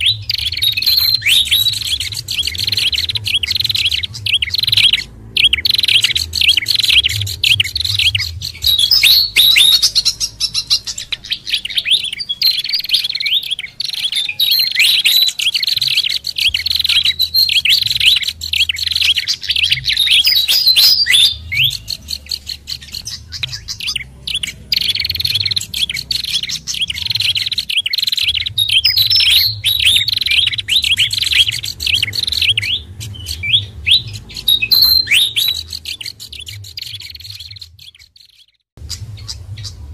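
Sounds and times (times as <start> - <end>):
low hum: 0.0 - 13.7, 38.8 - 39.9
songbirds chirping and twittering: 0.0 - 39.9.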